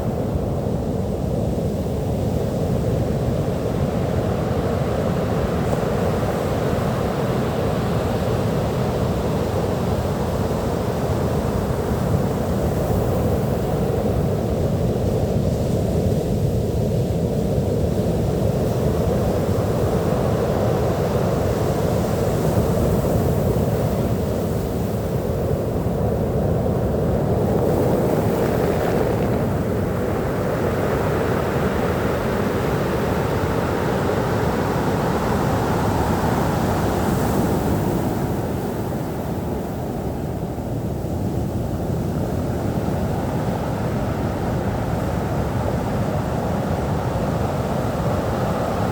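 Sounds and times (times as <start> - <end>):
sea waves washing onto beach: 25.6 - 40.3.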